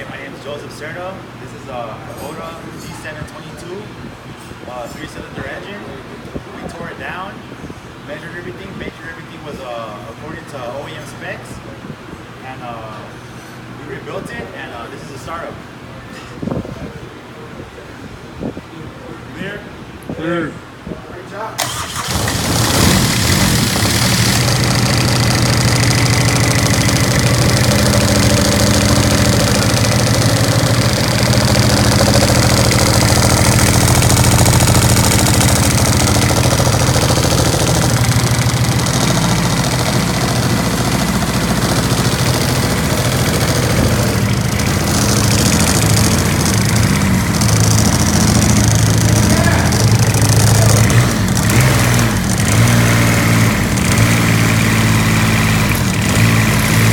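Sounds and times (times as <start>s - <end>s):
diesel engine idling: 21.6s - 56.9s.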